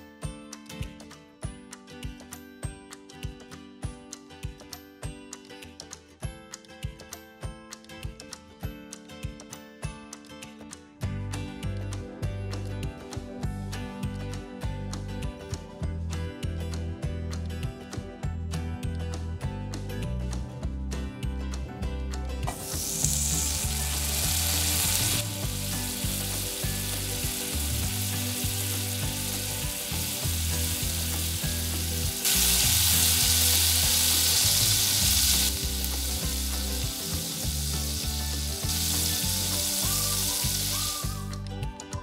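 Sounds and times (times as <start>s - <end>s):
soft background music: 0.0s - 42.0s
food frying in oil: 22.5s - 41.2s.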